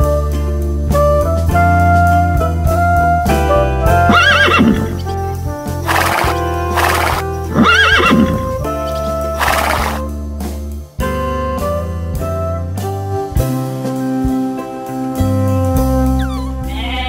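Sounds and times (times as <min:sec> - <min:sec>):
background music: 0:00.0 - 0:17.0
horse whinnying: 0:03.9 - 0:05.2, 0:05.8 - 0:10.1
horse blowing breaths: 0:04.1 - 0:10.1.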